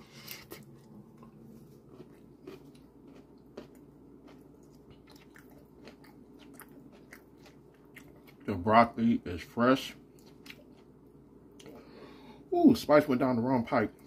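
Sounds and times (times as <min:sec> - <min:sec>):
soft crunches of broccoli: 0:00.0 - 0:08.5
person chewing with wet clicks: 0:00.2 - 0:08.6, 0:10.0 - 0:11.8.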